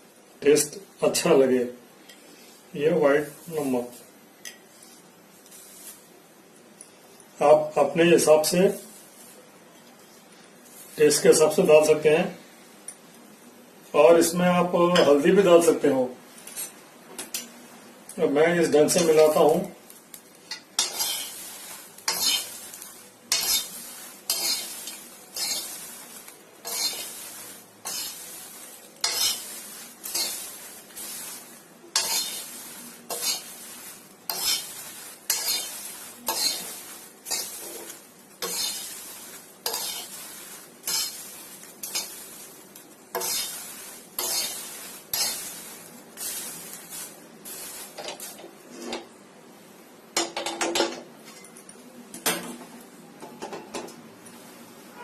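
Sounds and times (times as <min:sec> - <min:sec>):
popcorn tossed in a pot: 0:03.2 - 0:07.4, 0:18.7 - 0:48.7.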